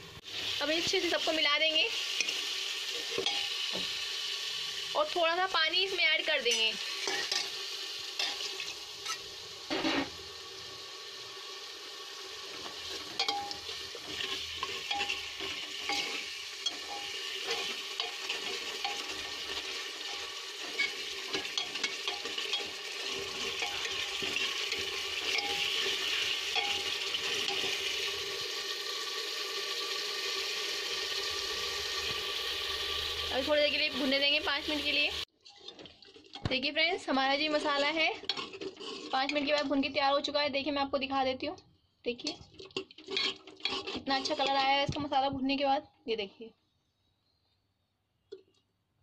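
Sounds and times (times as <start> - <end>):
spices sizzling in oil: 0.0 - 41.4, 42.0 - 45.7
ladle clinking and scraping pot: 2.2 - 3.7, 6.4 - 7.6, 12.6 - 28.2, 35.4 - 36.6, 37.5 - 39.9, 42.2 - 44.8.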